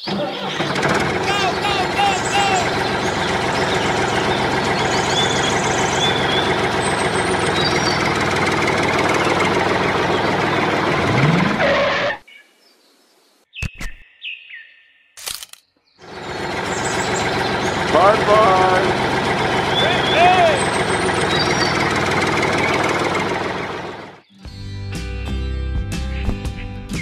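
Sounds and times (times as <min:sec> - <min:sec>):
birds chirping: 0:00.0 - 0:10.9, 0:12.2 - 0:23.6
engine running: 0:00.0 - 0:12.2, 0:15.2 - 0:24.2
sharp clicks: 0:15.2 - 0:15.6.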